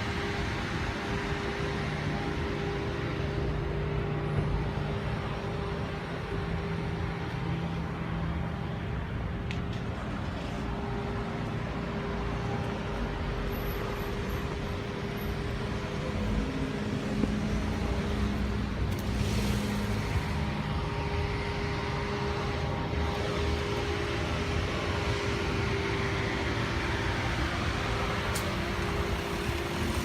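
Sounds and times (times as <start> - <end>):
road traffic rumble: 0.0 - 30.0
car passing by: 15.7 - 30.0.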